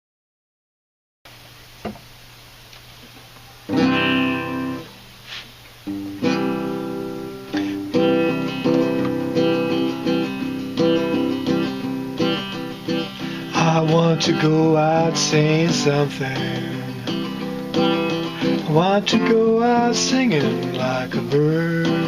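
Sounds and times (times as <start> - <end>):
acoustic guitar strumming: 3.7 - 5.1, 5.8 - 22.0.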